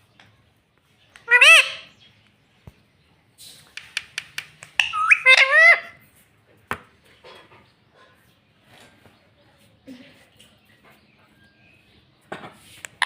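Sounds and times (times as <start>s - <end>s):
parrot squawking and warbling: 1.2s - 1.9s, 4.8s - 6.0s
parrot clicking sounds: 3.7s - 5.6s.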